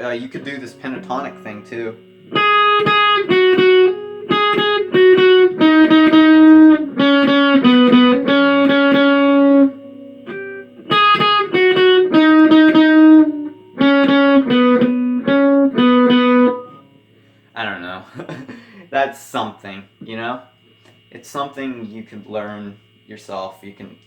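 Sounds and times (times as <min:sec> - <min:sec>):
guitar playing single-note riff: 0:00.0 - 0:17.4.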